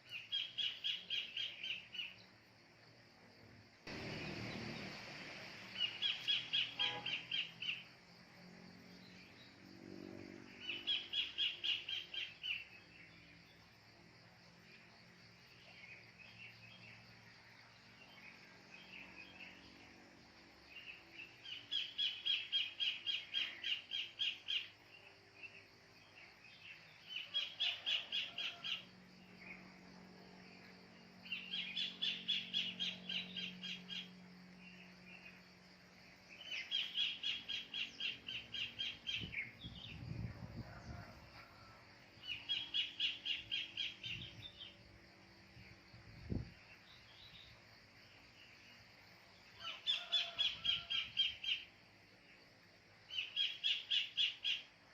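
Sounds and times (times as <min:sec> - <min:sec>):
other birds chirping: 0:49.6 - 0:51.7.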